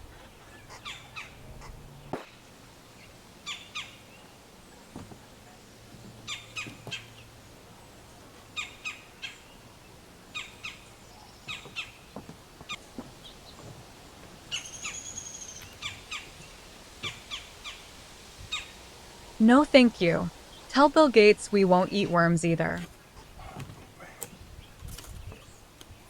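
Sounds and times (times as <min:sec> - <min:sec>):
bird calls: 0:00.0 - 0:05.2, 0:05.9 - 0:19.0.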